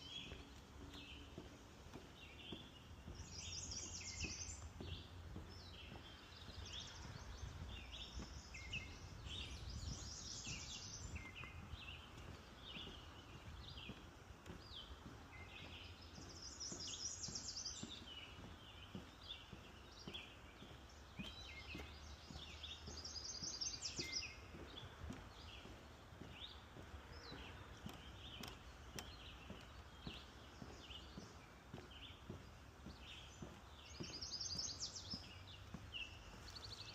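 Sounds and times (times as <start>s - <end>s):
songbirds singing: 0.0s - 36.9s.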